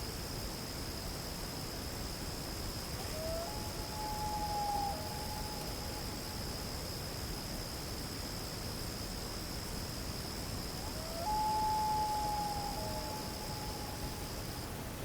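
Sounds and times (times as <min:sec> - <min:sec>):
animal call: 0:10.8 - 0:14.6.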